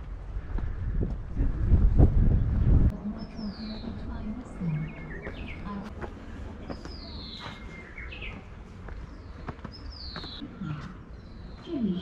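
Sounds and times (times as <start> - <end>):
steady low rumble: 0.0 - 9.5
bird chirps: 6.7 - 12.0.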